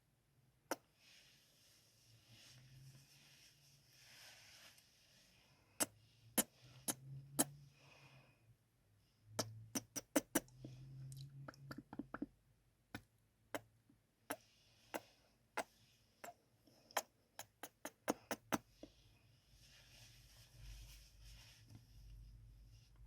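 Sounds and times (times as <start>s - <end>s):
sharp lip smacks: 9.4s - 10.6s, 16.2s - 18.6s.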